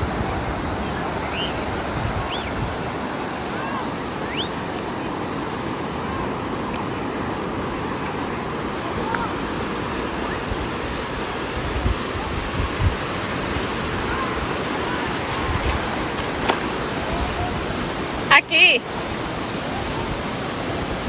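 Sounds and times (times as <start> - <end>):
wind buffeting microphone: 0.0 - 3.8, 6.0 - 18.3
rushing water: 0.0 - 21.0.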